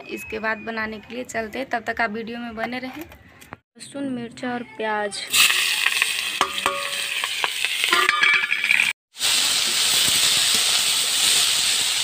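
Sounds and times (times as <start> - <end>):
metallic scrapes against pan: 5.3 - 8.9
greens frying in pan: 5.3 - 12.0
vegetables sizzling in hot oil: 5.3 - 12.0.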